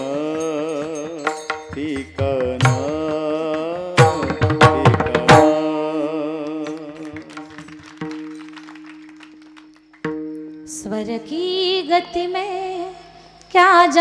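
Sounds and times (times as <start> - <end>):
wavering melodic instrument: 0.0 - 3.1.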